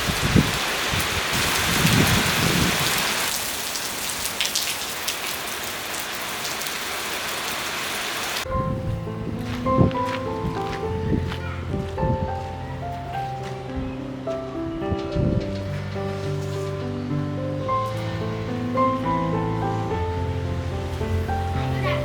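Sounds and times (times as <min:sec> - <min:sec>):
thunder rumbling: 0:00.0 - 0:03.6
heavy rain hissing: 0:00.0 - 0:09.4, 0:15.6 - 0:22.0
gentle background music: 0:08.5 - 0:22.0.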